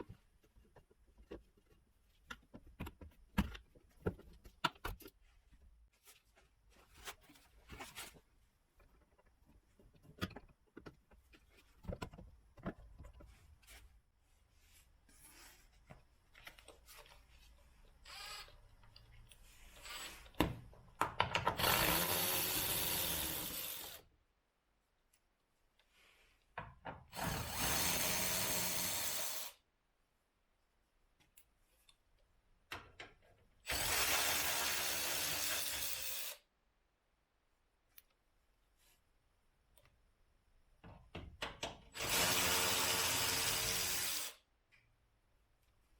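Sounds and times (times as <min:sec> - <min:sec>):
impact wrench running: 0:21.6 - 0:24.0, 0:27.2 - 0:29.5.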